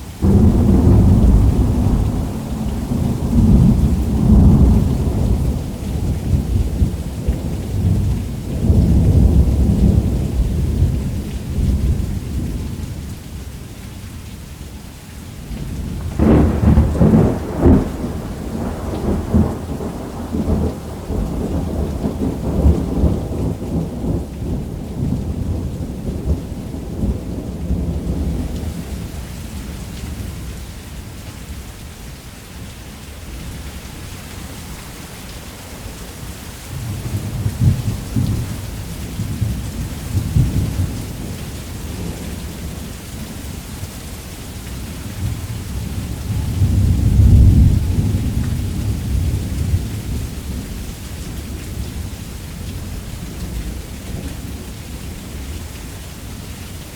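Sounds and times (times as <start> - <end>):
heavy rain on a roof: 0.0 - 56.9
thunder rumbling: 0.2 - 12.8, 15.6 - 29.2, 36.7 - 43.5, 44.8 - 55.4.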